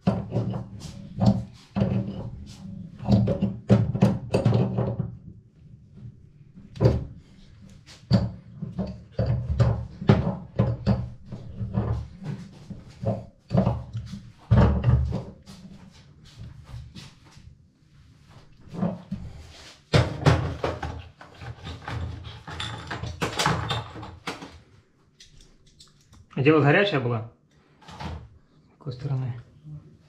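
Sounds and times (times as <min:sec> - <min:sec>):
tools clattering: 0:20.7 - 0:24.5.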